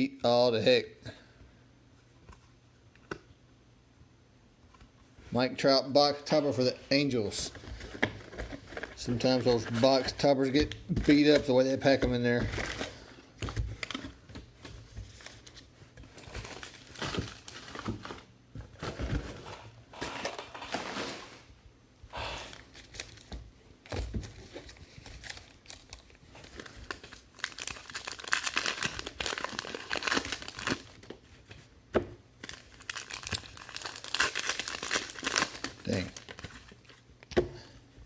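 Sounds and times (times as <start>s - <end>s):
card wrappers crinkling and tearing: 7.3s - 19.3s, 22.5s - 31.1s, 32.4s - 36.9s.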